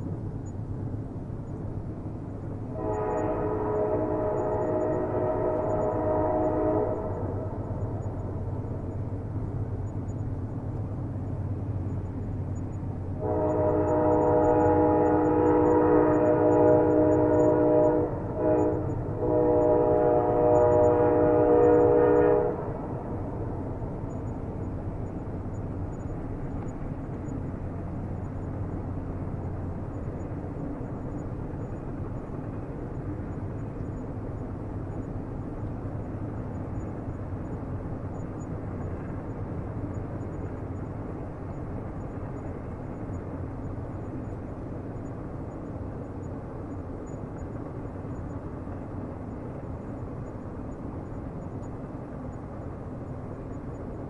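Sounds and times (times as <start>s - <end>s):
passing train rumble: 0.0s - 54.0s
train horn chord: 2.7s - 7.8s, 13.2s - 23.8s.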